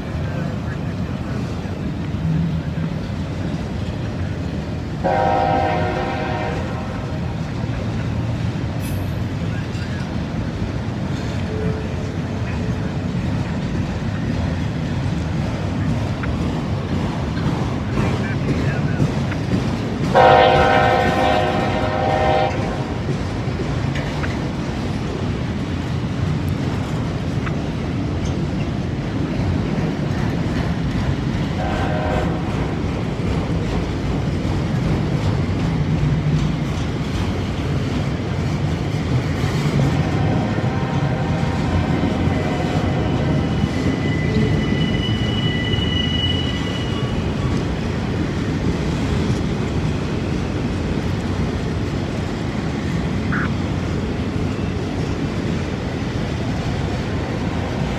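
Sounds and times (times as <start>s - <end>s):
train wheels rumbling on rails: 0.0s - 57.9s
locomotive horn blasts: 5.0s - 7.3s, 20.2s - 23.0s, 31.6s - 32.8s, 40.0s - 43.5s.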